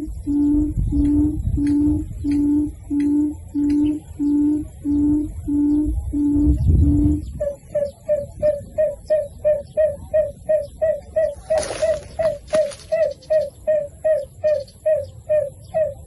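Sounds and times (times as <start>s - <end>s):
bird calling: 0.0s - 16.0s
noisy rustles: 11.3s - 13.4s.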